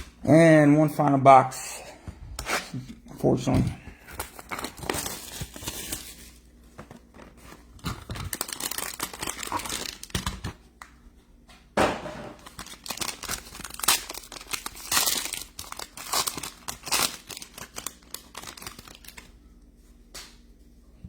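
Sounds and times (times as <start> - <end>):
wrapping tearing and crinkling: 4.0 - 10.6, 12.4 - 19.3.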